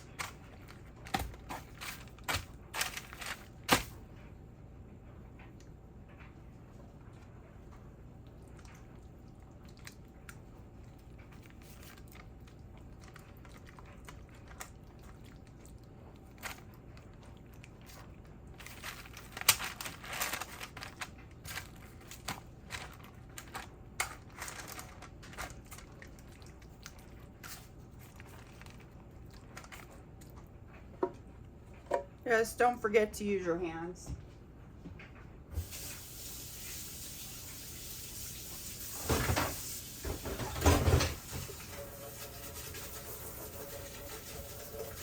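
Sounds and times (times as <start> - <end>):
hands rubbing raw chicken: 41.7 - 45.0.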